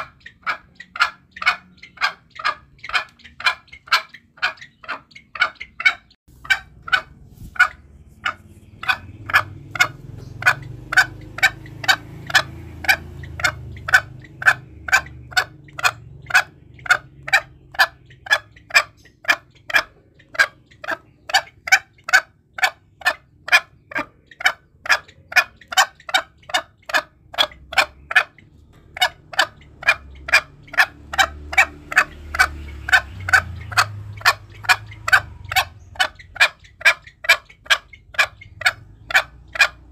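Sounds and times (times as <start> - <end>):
junglefowl calling: 0.0 - 39.9.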